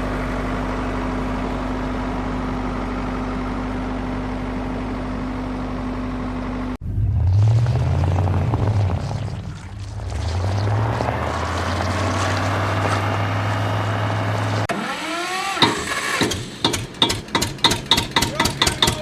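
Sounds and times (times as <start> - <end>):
engine humming: 0.0 - 19.0
deeper engine note: 6.3 - 14.7.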